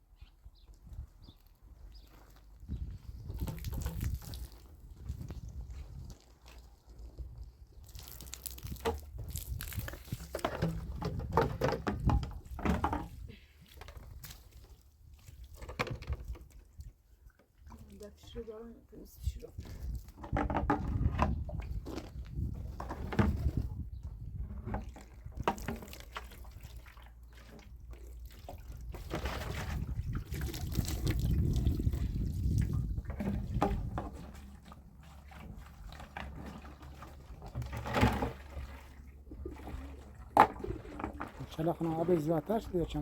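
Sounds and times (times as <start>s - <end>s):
water running and splashing: 7.8s - 10.6s.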